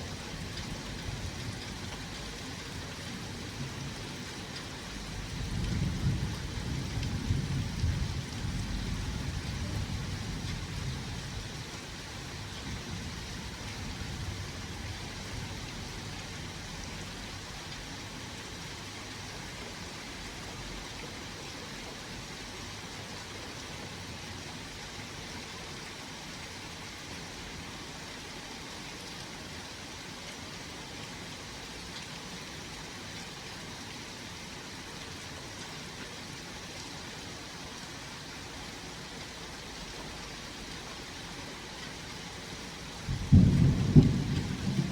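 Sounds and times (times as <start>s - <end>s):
low thunder rumble: 5.2s - 11.4s, 43.0s - 44.9s
rain hissing: 31.4s - 44.9s.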